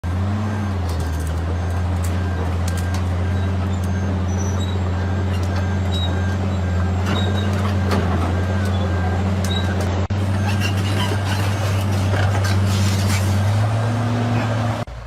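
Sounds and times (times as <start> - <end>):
heavy vehicle engine droning: 0.0 - 15.0.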